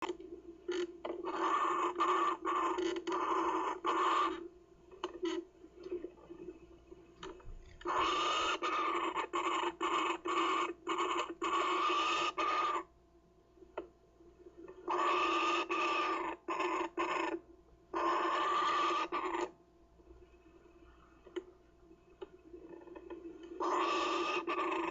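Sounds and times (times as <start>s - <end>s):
kookaburra chick rasping calls: 0.7s - 4.5s, 7.8s - 12.9s, 14.8s - 19.6s, 23.6s - 24.9s.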